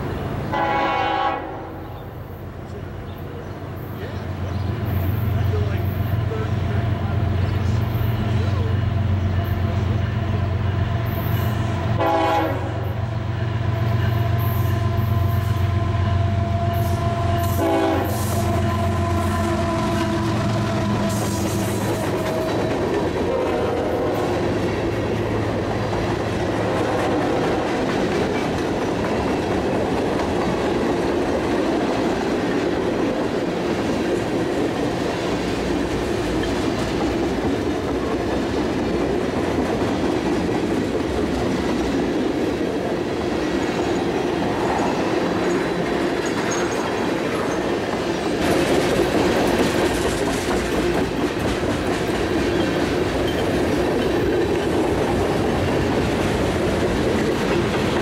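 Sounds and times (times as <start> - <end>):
locomotive horn: 0.5 - 2.0, 11.1 - 13.0, 14.1 - 24.4.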